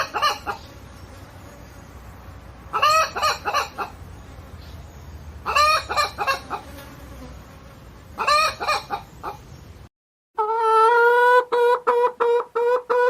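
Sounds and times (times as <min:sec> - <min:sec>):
hen clucking: 0:00.0 - 0:00.8, 0:02.7 - 0:04.0, 0:05.4 - 0:06.7, 0:08.2 - 0:09.6, 0:10.4 - 0:13.0.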